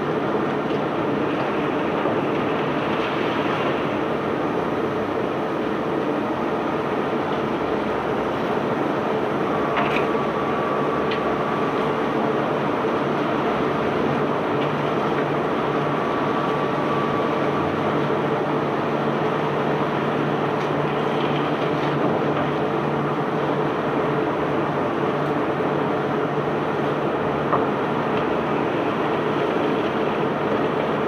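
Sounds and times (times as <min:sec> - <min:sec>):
ship engine and machinery drone: 0:00.0 - 0:31.0.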